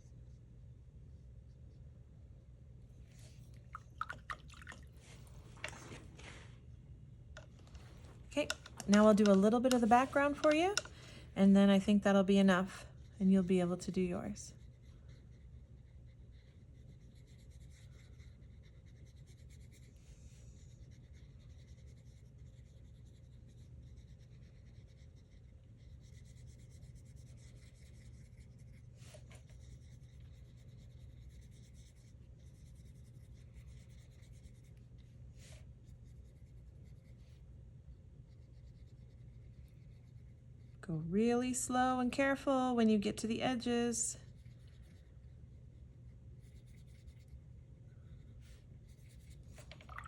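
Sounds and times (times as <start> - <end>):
paintbrush stroking on paper: 3.0 - 3.8, 7.7 - 10.9, 13.2 - 37.4, 43.3 - 47.4, 48.3 - 50.0.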